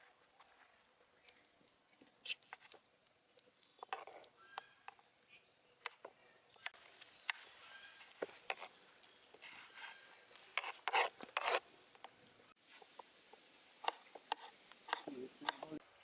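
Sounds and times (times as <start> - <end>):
rough scraping or rustling: 9.4 - 11.7.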